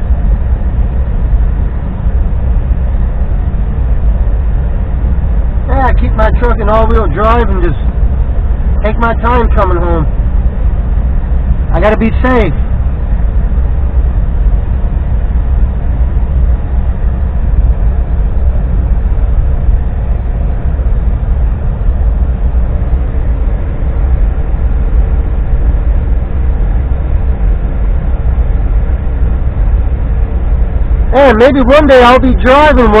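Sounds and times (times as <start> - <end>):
faint constant hum: 0.0 - 33.0
truck engine rumble: 0.0 - 33.0.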